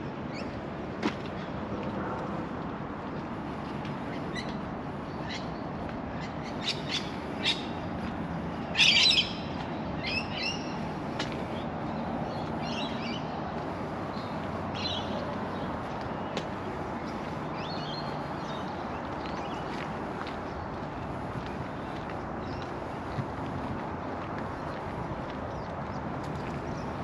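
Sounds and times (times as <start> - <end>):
low rush of background noise: 0.0 - 27.0
birds chirping: 3.0 - 23.4.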